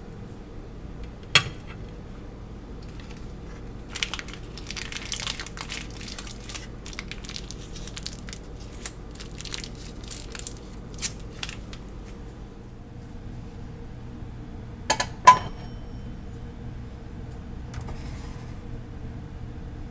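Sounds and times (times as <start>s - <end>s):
steady low hum: 0.0s - 19.9s
sharp crackling and crunching: 2.8s - 12.2s.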